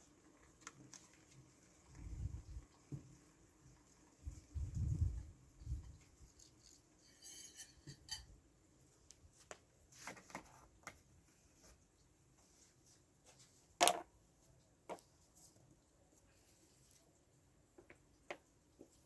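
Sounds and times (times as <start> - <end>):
dishes and utensils clinking: 7.0 - 8.4.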